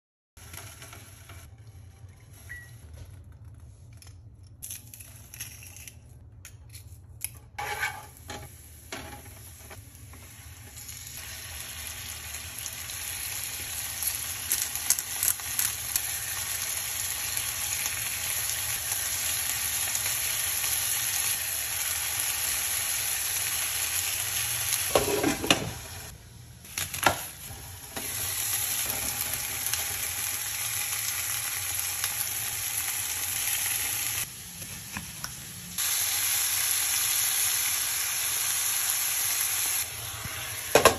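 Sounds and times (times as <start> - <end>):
chicken sizzling in a pan: 8.4 - 40.9.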